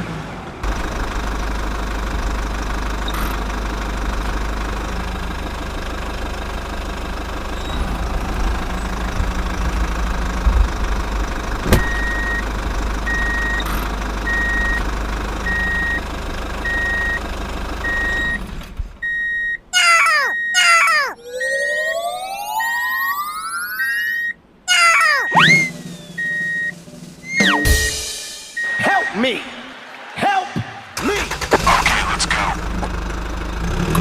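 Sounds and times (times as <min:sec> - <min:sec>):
small engine running: 0:00.0 - 0:18.6, 0:31.0 - 0:34.0
reversing beeper: 0:11.7 - 0:12.5, 0:13.1 - 0:14.8, 0:15.4 - 0:16.0, 0:16.6 - 0:17.2, 0:17.8 - 0:29.3
falling whistle-like sweeps: 0:21.2 - 0:24.4, 0:25.3 - 0:27.9.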